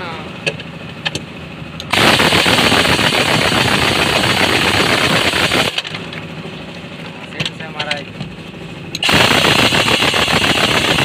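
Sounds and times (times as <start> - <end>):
pneumatic impact wrench rattling: 1.8 - 6.1, 9.0 - 11.0.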